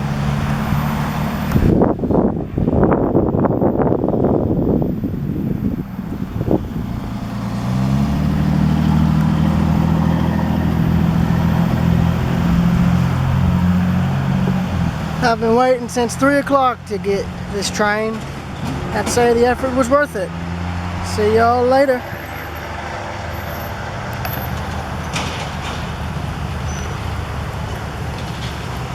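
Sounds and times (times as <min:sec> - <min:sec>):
engine humming: 0:00.0 - 0:28.9
train wheels rumbling on rail: 0:00.0 - 0:28.9.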